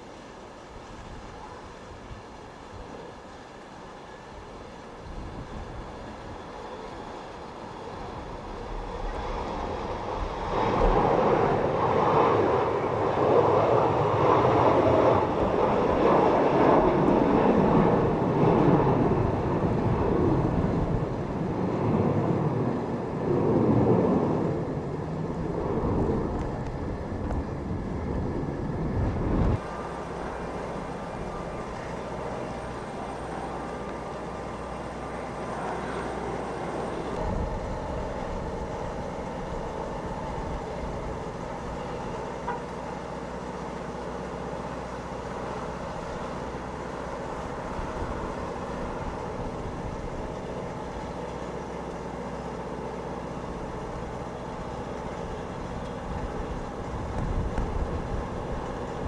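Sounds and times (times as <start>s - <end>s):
jet engine rush with whine: 0.0s - 59.0s
wind buffeting microphone: 4.9s - 42.3s, 46.6s - 51.2s, 53.5s - 59.0s.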